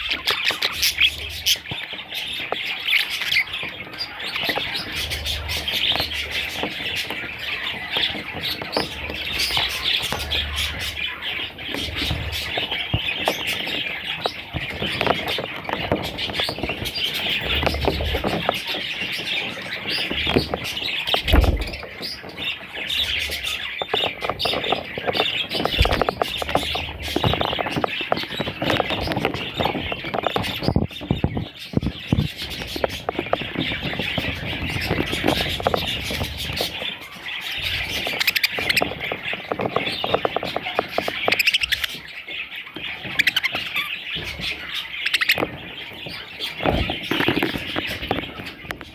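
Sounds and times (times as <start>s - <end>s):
budgerigars chattering: 0.0s - 48.9s
low thumps: 21.2s - 21.9s.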